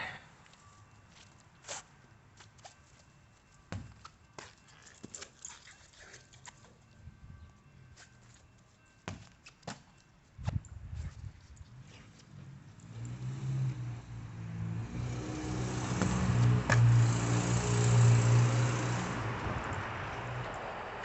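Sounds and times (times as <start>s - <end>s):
vehicle engine hum: 11.4s - 21.0s.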